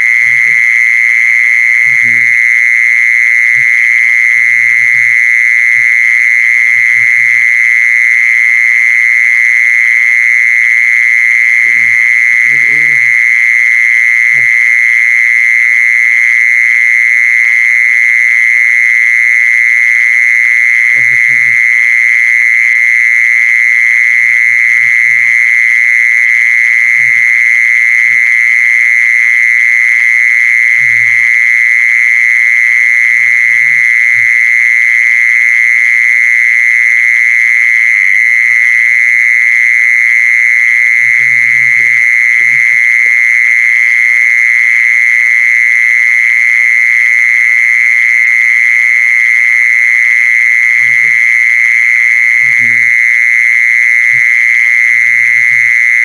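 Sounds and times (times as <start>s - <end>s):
cicada high-pitched buzz: 0.0s - 56.0s.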